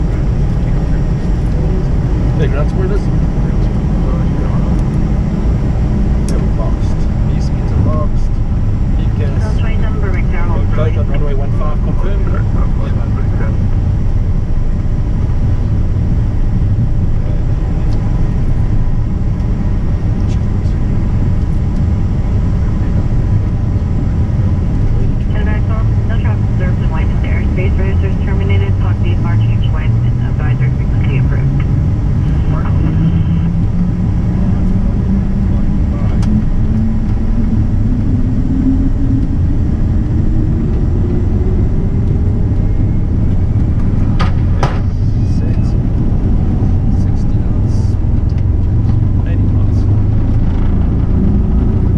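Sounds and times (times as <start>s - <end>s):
jet taking off: 0.0s - 48.4s
faint constant tone: 6.3s - 34.0s.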